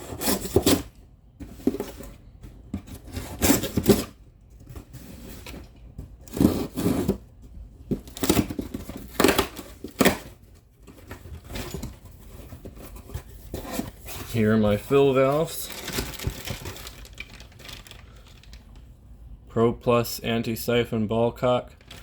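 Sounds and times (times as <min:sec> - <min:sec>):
packaging tearing and rustling: 0:08.0 - 0:18.9, 0:21.8 - 0:22.0.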